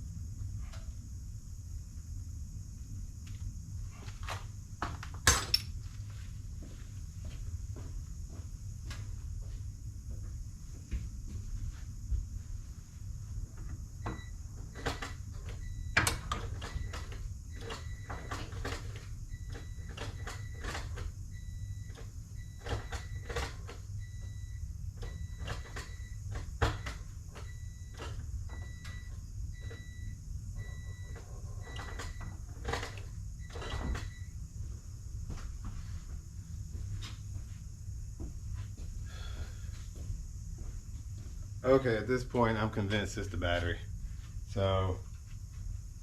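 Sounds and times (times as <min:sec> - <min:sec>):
steady low rumble: 0:00.0 - 0:04.8, 0:05.6 - 0:14.6, 0:34.1 - 0:46.0.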